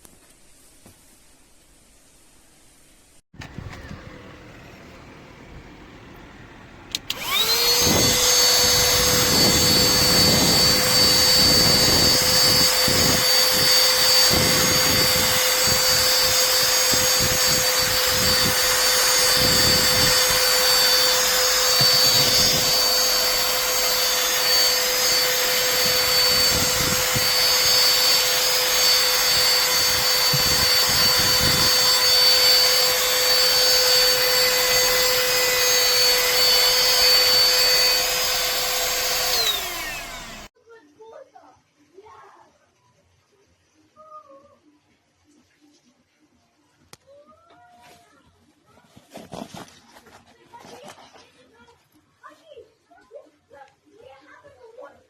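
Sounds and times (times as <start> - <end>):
handheld vacuum cleaner running: 3.4 - 6.0, 6.9 - 40.5.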